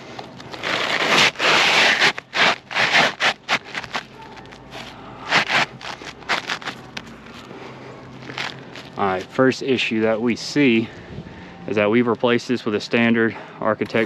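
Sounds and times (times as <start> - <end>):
shingle scraping against shingles: 0.4 - 7.4.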